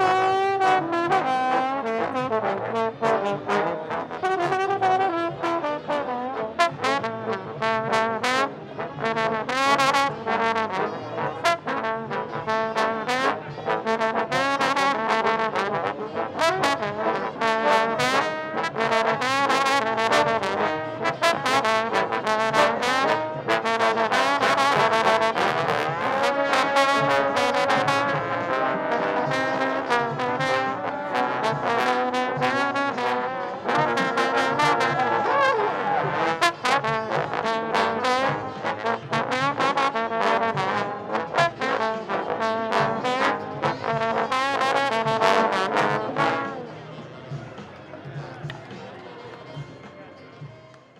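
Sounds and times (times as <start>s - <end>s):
trombone fast runs: 0.0s - 46.8s.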